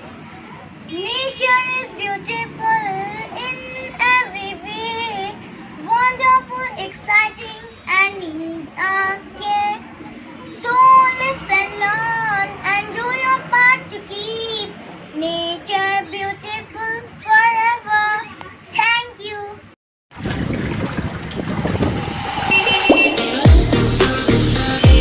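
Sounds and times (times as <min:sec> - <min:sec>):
girl singing: 0:00.9 - 0:09.8, 0:10.5 - 0:19.7.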